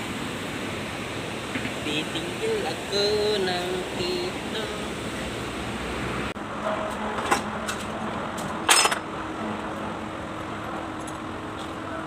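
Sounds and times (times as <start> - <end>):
steady background noise: 0.0 - 12.0
metallic clatter: 8.6 - 9.1.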